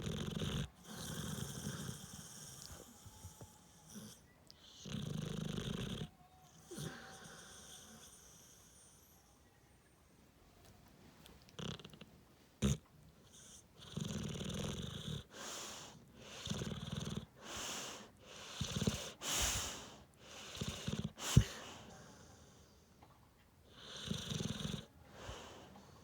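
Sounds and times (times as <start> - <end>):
dog snoring loudly: 0.0 - 6.1, 11.6 - 12.0, 12.6 - 15.6, 16.3 - 17.7, 18.4 - 19.7, 20.4 - 21.5, 23.7 - 24.9.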